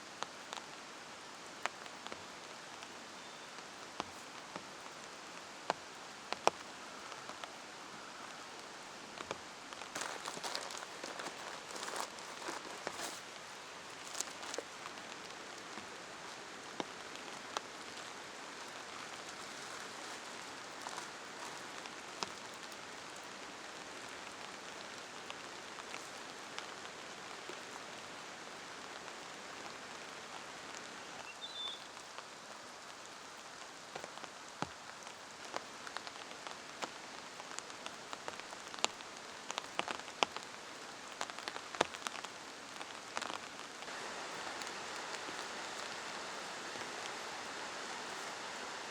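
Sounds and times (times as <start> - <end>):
rain falling: 0.0 - 48.9
raindrops tapping on a surface: 0.1 - 2.9, 3.5 - 7.6, 8.3 - 48.7.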